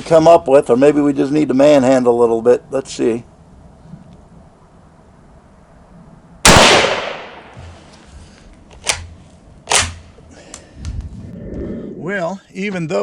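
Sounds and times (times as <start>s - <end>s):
rifle shot: 6.4s - 7.6s, 9.7s - 10.1s
sharp rifle bolt clacks: 8.7s - 10.6s.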